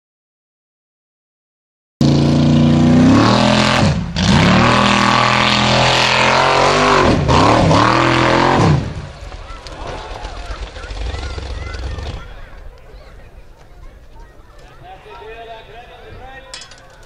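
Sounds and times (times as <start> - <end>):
race car engine revving hard: 2.0 - 9.0.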